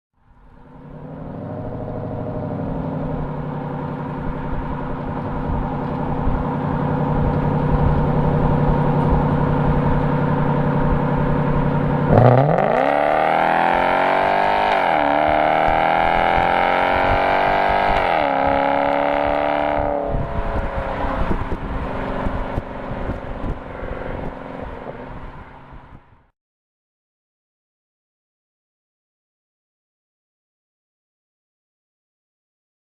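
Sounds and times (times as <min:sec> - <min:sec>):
car exhaust revving with upshifts: 0:00.7 - 0:26.0.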